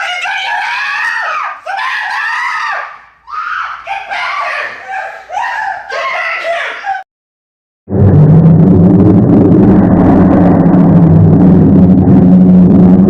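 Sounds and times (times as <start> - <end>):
person screaming: 0.0 - 7.0.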